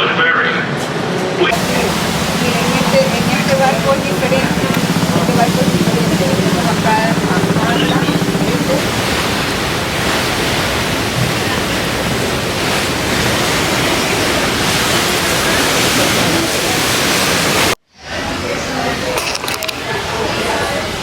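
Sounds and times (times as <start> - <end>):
wind and water rushing: 1.5 - 17.8.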